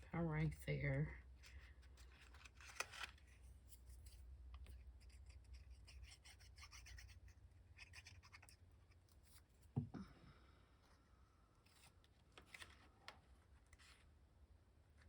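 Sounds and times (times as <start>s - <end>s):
paper rustling and scratching: 1.4s - 9.7s, 11.6s - 14.2s.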